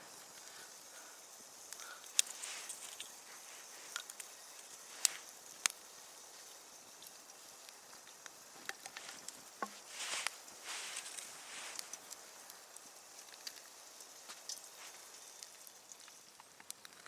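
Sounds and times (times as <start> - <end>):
campfire hissing: 0.0 - 17.0.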